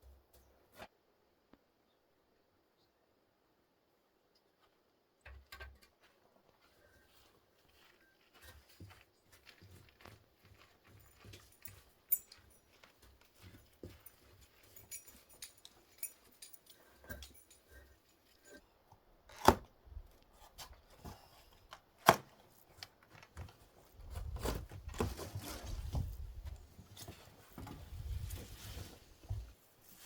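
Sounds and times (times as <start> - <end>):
light clicks and rustles: 4.6 - 18.6.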